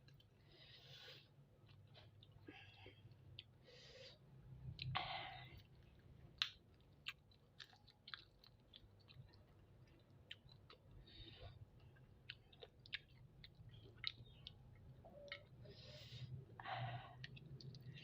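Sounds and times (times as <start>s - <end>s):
person chewing with mouth clicks: 4.6s - 15.7s, 17.2s - 18.0s.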